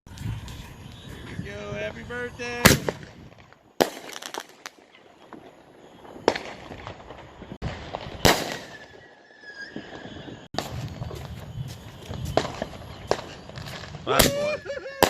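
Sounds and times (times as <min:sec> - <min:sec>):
firework bangs echoing: 0:02.5 - 0:09.2, 0:09.8 - 0:14.6
firework pops: 0:02.6 - 0:09.0, 0:10.6 - 0:14.5.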